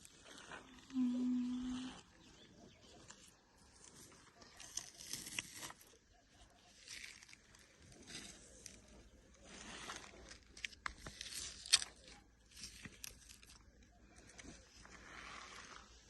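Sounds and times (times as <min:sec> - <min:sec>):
plastic toys rustling and scraping: 0:03.1 - 0:06.0, 0:06.6 - 0:16.0.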